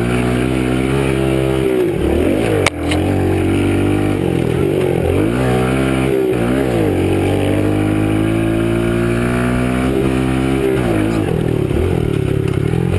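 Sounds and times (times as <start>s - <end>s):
pit bike engine revving: 0.0s - 12.9s.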